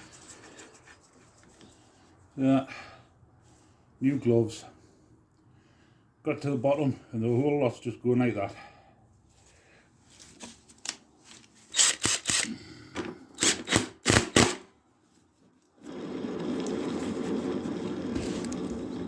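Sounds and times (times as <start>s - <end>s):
hand tools scraping and clicking metal: 10.1s - 12.5s, 13.3s - 14.5s.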